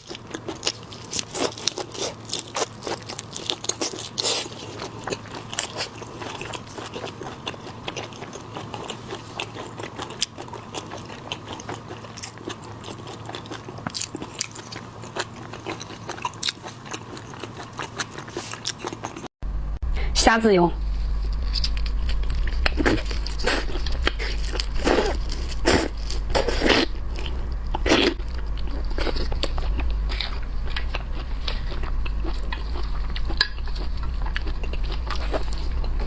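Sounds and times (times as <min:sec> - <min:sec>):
wet chewing: 0:00.0 - 0:19.3, 0:21.1 - 0:36.0
shrimp shells crunching: 0:21.1 - 0:36.0.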